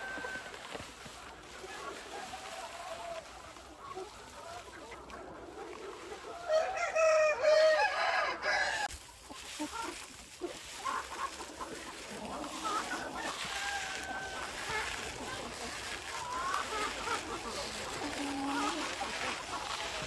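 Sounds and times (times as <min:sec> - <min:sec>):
chickens clucking softly: 0:00.0 - 0:20.0
rooster crowing: 0:06.5 - 0:08.9, 0:13.2 - 0:14.7.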